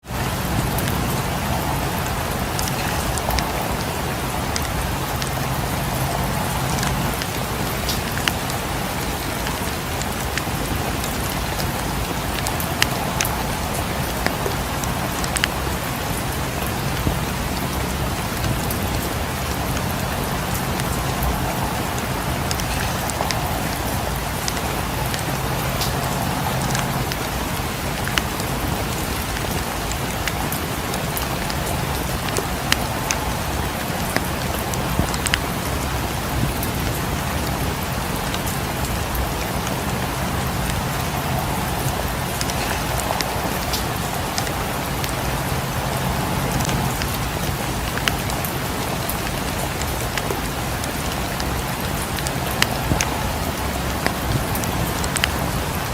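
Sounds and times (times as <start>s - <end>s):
steady rain: 0.0s - 55.9s
wood fire crackling: 0.0s - 55.9s.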